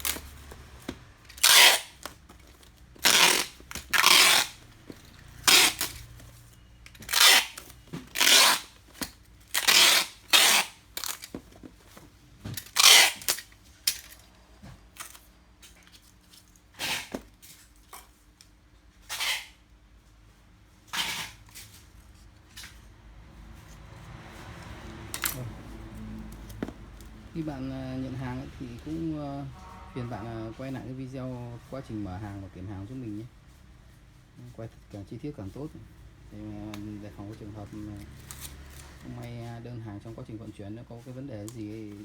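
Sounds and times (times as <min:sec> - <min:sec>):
sharp rasping bursts: 0:01.3 - 0:02.1, 0:03.0 - 0:04.7, 0:05.3 - 0:06.1, 0:07.0 - 0:08.8, 0:09.5 - 0:11.2.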